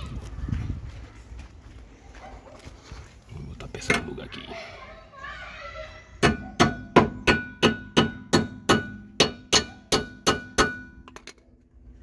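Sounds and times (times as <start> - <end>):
hammer striking metal: 6.2 - 11.3.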